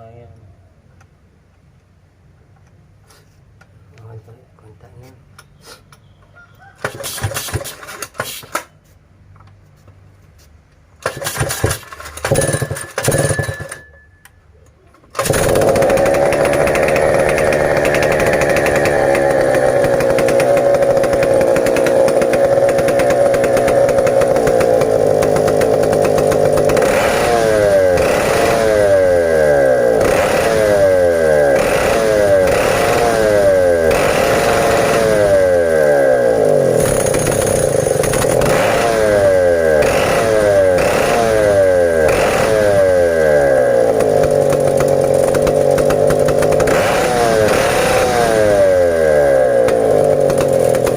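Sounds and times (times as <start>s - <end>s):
chainsaw engine running: 11.0s - 13.8s, 15.2s - 50.9s.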